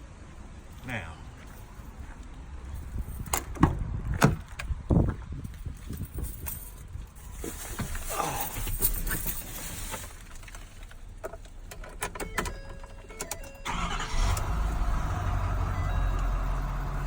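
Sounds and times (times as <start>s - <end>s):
diesel engine starting and idling: 11.0s - 17.0s.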